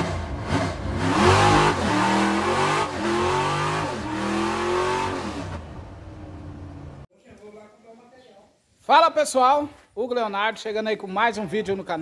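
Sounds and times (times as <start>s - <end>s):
car engine revving: 0.0s - 7.1s.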